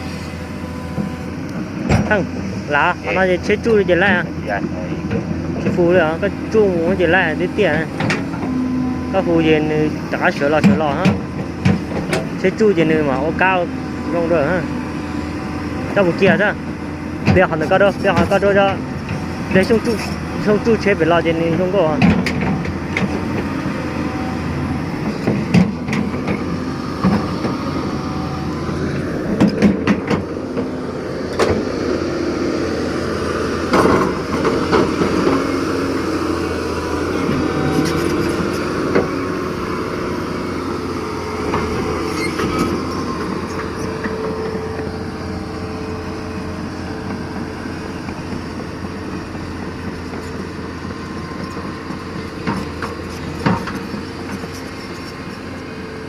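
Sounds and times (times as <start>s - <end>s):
excavator running: 0.0s - 56.0s
metallic clanks and knocks: 29.3s - 30.7s.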